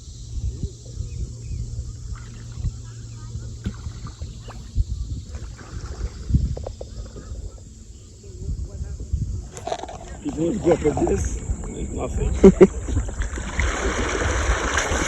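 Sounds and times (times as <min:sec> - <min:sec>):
low steady hum: 0:00.0 - 0:15.0
wind on microphone: 0:00.0 - 0:15.0
paddle strokes splashing: 0:02.0 - 0:07.5, 0:09.5 - 0:15.0.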